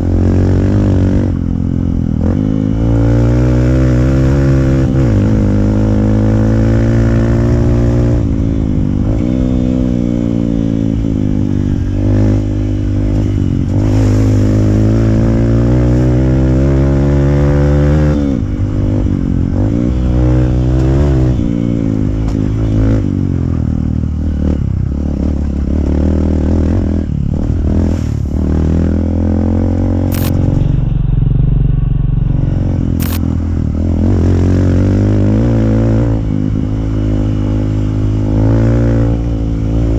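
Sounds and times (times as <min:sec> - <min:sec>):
motorcycle engine revving: 0:00.0 - 0:39.9
sharp ticks: 0:30.1 - 0:30.5, 0:33.0 - 0:33.3.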